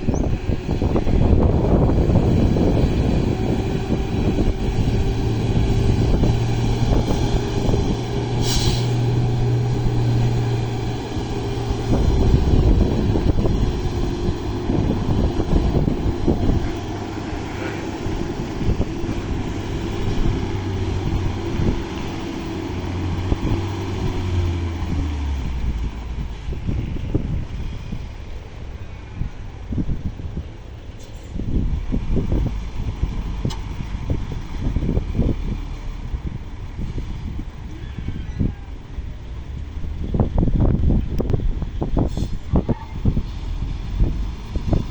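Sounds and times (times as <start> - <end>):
diesel truck engine running: 0.0 - 44.9
short hiss: 8.4 - 9.0.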